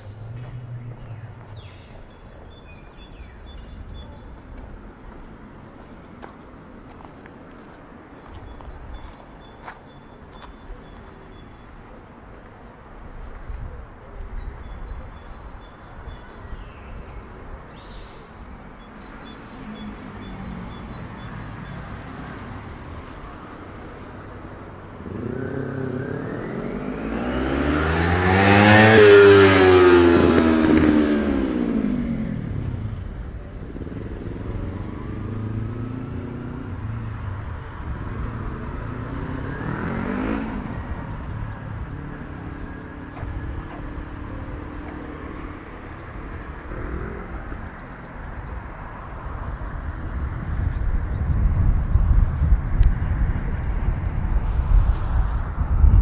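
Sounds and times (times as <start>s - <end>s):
vehicle passing by: 0.0s - 2.8s, 17.2s - 56.0s
faint vehicle passing: 0.0s - 56.0s
street noise: 0.0s - 56.0s.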